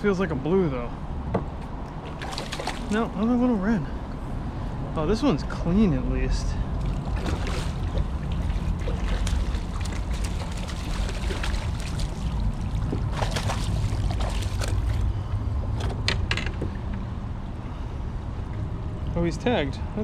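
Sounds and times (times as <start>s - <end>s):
wind and water rumble: 0.0s - 20.0s
water splashes: 1.7s - 3.6s, 6.2s - 15.2s.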